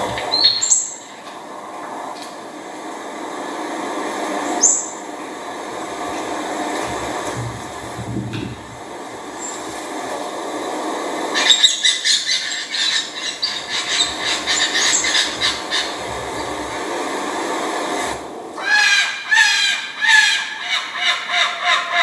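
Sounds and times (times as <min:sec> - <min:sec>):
steady background rush: 0:02.7 - 0:18.6
bird chattering calls: 0:11.3 - 0:17.0, 0:18.6 - 0:22.0.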